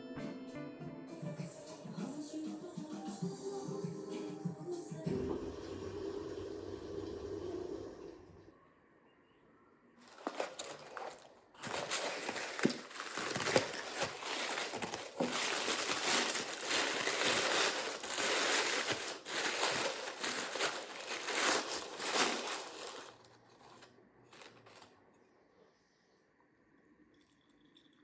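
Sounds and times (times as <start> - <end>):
wrapping crinkling and rustling: 10.0 - 25.1.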